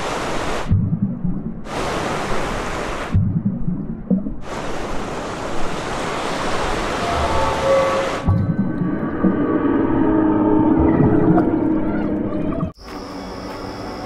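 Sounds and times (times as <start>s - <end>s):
waves washing and hissing: 0.0s - 0.8s, 1.6s - 3.2s, 4.4s - 8.3s
muffled underwater rumble: 7.4s - 12.8s.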